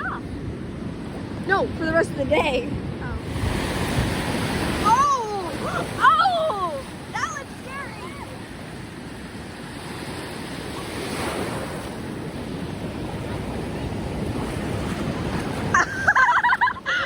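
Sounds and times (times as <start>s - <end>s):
surf rushing up beach: 0.0s - 17.0s
wind buffeting microphone: 0.0s - 17.0s.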